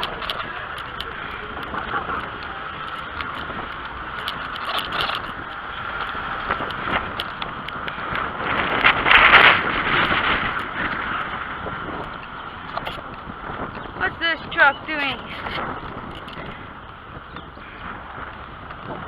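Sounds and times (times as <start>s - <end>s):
bicycle clicks and rattles: 0.0s - 14.0s, 15.0s - 19.0s
road and wind noise: 0.0s - 19.0s.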